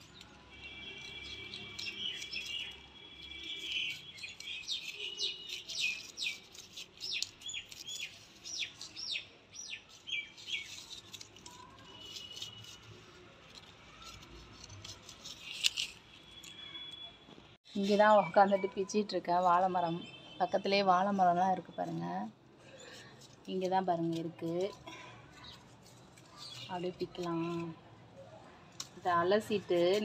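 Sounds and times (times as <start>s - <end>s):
small birds chirping: 0.0s - 17.0s, 25.4s - 27.8s.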